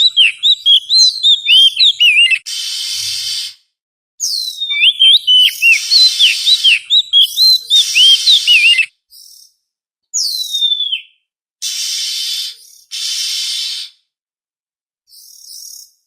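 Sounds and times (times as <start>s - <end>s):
bird singing whistled notes: 0.0s - 2.4s, 4.2s - 9.5s, 10.2s - 11.2s, 15.1s - 16.0s.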